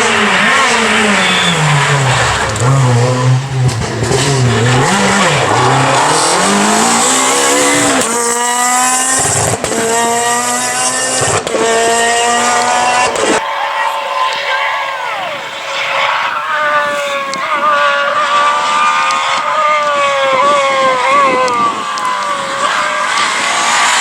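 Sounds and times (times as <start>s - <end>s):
tyres squealing: 0.0s - 8.9s, 11.8s - 24.0s
rally car engine revving: 0.0s - 24.0s.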